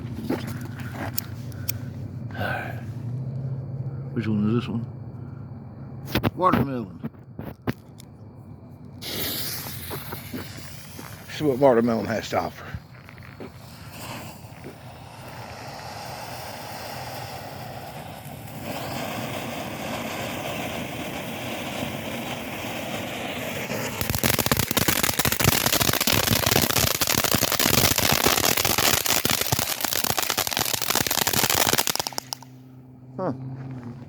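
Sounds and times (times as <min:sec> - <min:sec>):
firework fountain spray hiss: 0:09.0 - 0:32.6
firework crackling: 0:09.0 - 0:32.7.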